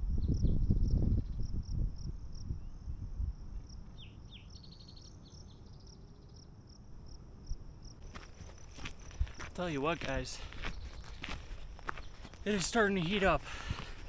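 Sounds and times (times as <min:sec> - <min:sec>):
insect chirping: 0:00.2 - 0:12.9.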